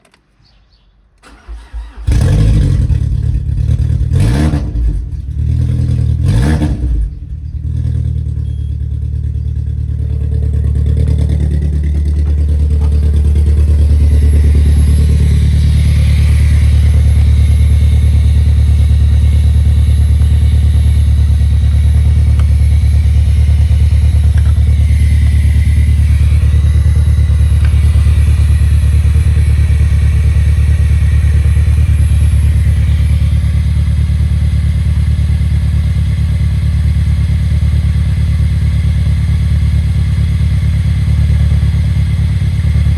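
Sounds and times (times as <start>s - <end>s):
car engine starting and revving: 1.2s - 33.3s
car engine idling: 1.2s - 42.9s.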